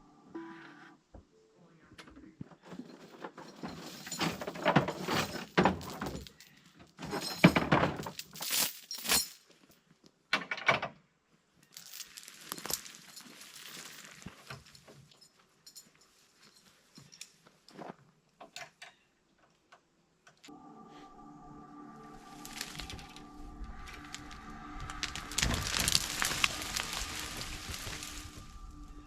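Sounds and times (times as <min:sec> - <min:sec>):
woody brush crackling and snapping: 0:22.3 - 0:29.0.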